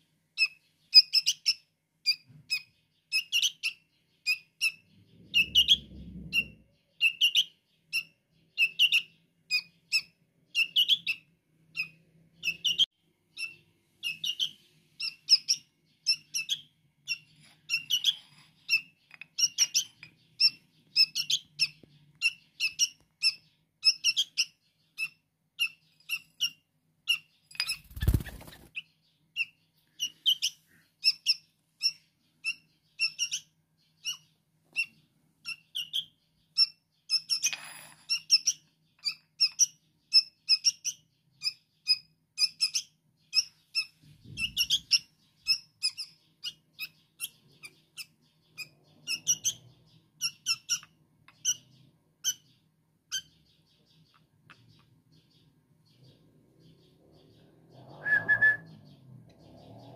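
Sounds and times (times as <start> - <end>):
fledgling bird begging chirps: 0.4 - 37.5.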